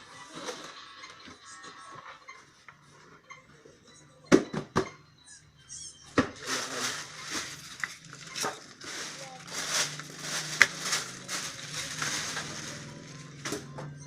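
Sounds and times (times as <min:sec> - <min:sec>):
packaging rustling and crinkling: 0:06.4 - 0:13.7.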